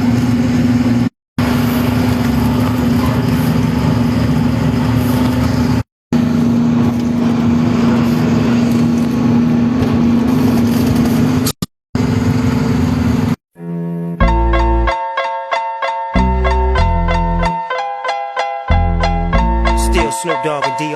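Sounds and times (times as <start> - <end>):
truck diesel engine droning: 0.0 - 15.0.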